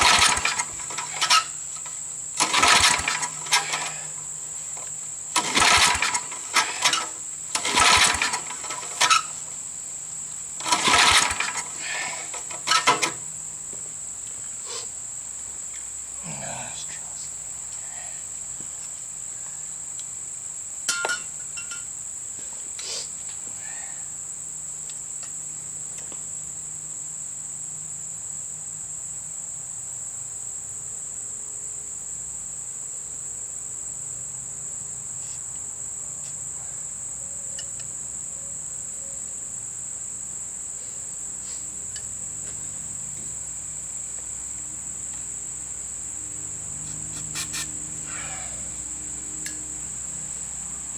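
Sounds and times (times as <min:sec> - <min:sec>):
crickets trilling: 0:00.0 - 0:50.9.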